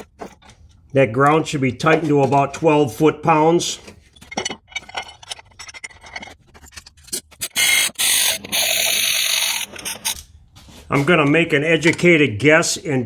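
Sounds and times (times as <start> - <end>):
high-pitched whir: 7.4 - 10.2
ratchet wrench clicking: 7.4 - 10.2.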